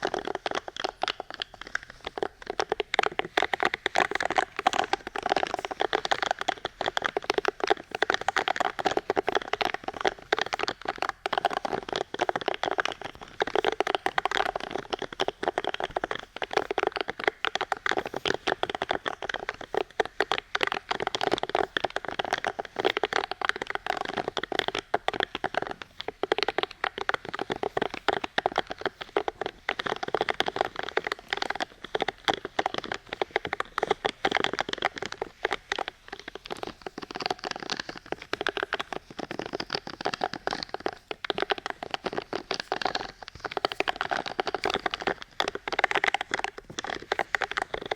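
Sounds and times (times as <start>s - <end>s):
fast dense crackling and tapping: 0.0s - 47.9s.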